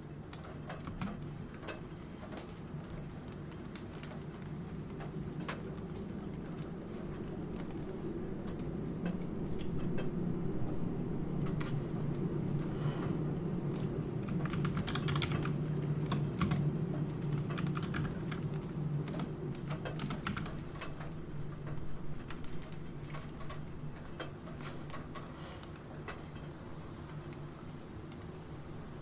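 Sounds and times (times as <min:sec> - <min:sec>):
rain: 0:00.0 - 0:29.0
typing on keyboard: 0:00.3 - 0:01.8, 0:13.7 - 0:25.2.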